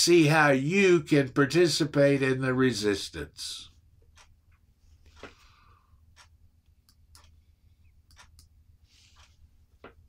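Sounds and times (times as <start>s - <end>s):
faint clicks: 6.1s - 8.6s.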